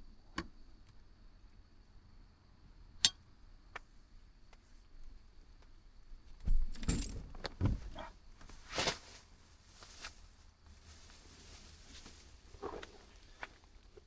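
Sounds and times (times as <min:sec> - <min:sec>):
clattering and rustling: 0:06.4 - 0:09.2.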